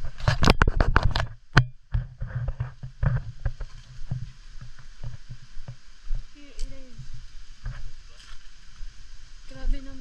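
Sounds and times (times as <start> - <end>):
faint steady hiss: 0.0 - 10.0
footsteps on rough trail: 0.0 - 10.0.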